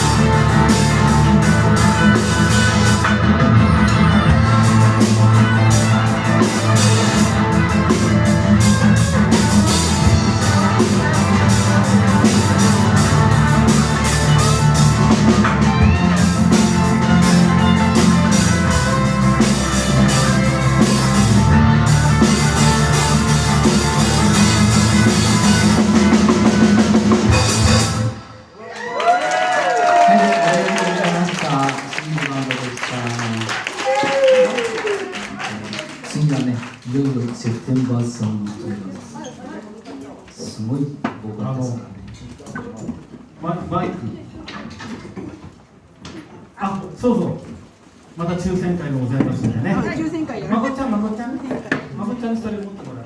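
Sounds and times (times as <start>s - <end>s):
rock band playing: 0.0s - 36.1s.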